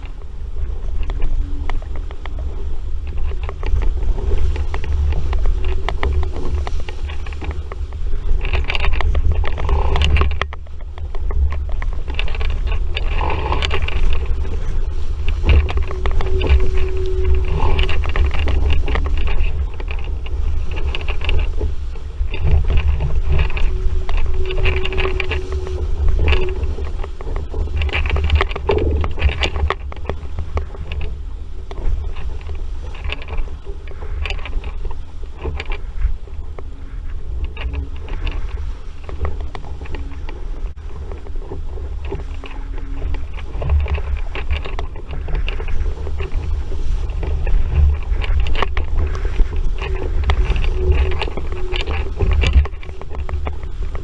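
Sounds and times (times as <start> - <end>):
water splashing against hull: 0.0 - 54.0
wind buffeting microphone: 0.0 - 54.0.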